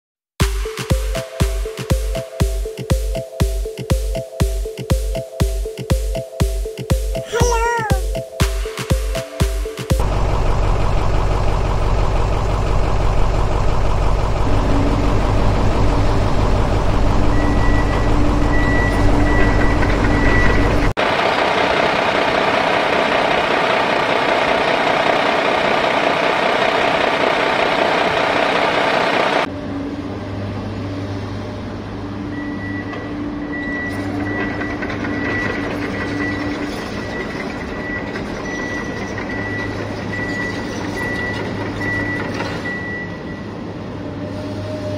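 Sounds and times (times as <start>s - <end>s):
toy excavator mechanical drone: 33.5s - 43.1s.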